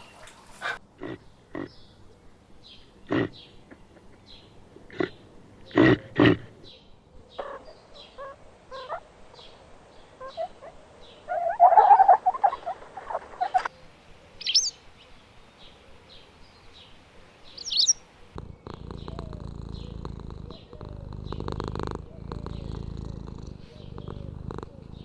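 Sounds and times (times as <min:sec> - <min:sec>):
bird chattering call: 0:14.4 - 0:14.8, 0:17.6 - 0:25.0
short high bird chirps: 0:14.4 - 0:14.8, 0:17.6 - 0:18.0
shrill rising bird calls: 0:17.6 - 0:18.0.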